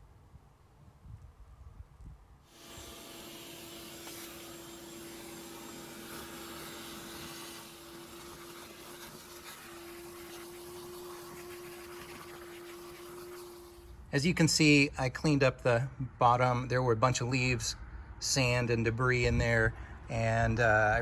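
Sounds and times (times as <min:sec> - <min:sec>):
shop vacuum humming: 0:02.5 - 0:14.1.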